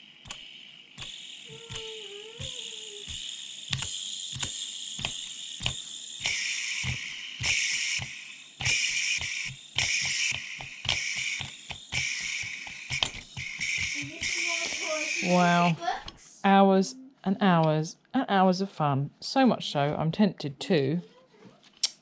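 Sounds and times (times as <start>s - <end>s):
electronic clicking rhythm: 0.2s - 15.7s
bursts of hiss: 4.3s - 15.7s.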